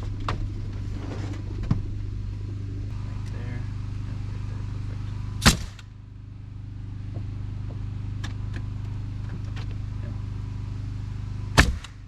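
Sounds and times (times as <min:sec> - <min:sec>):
engine humming: 0:00.0 - 0:12.0
nail gun shot: 0:05.4 - 0:05.9, 0:11.5 - 0:12.0.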